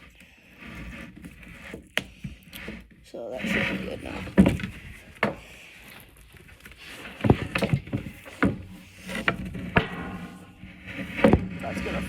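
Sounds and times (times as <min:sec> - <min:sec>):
hockey stick knocking on table: 0:09.7 - 0:11.5.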